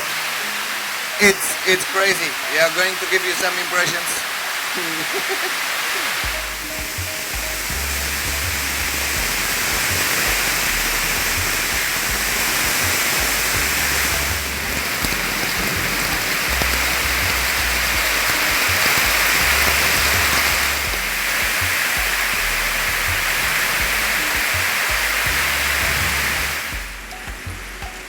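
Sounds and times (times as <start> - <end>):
heavy rain hissing: 0.0 - 28.0
background music with bass: 6.2 - 28.0.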